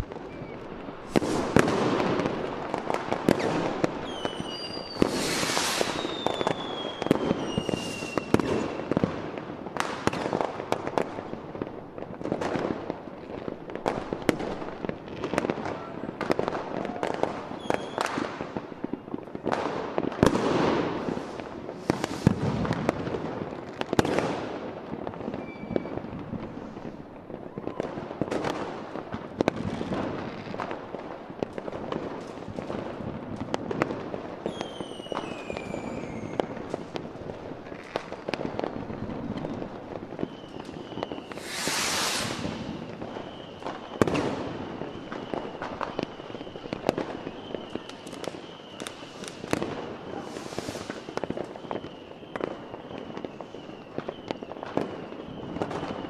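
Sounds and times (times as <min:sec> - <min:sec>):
fireworks booming and crackling: 0:00.0 - 0:56.0
firework whistles falling in pitch: 0:00.1 - 0:02.3, 0:03.2 - 0:09.0, 0:16.7 - 0:19.0, 0:20.3 - 0:22.9, 0:25.3 - 0:26.2, 0:34.4 - 0:36.6, 0:39.4 - 0:56.0.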